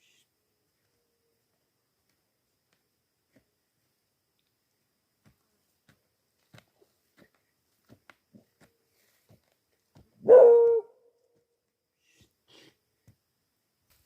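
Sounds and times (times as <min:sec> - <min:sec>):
dog barking: 0:10.2 - 0:10.9.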